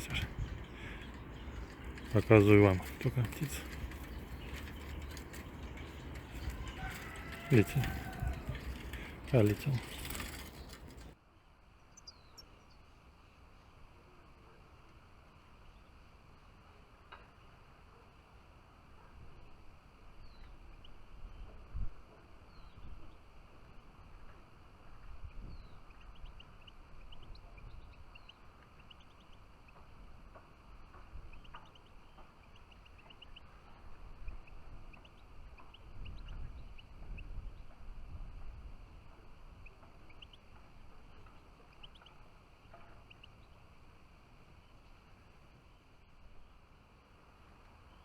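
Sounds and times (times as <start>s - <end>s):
low uneven rumble: 0.0s - 11.2s
songbirds chirping: 0.0s - 11.2s, 11.8s - 13.4s, 22.3s - 48.0s.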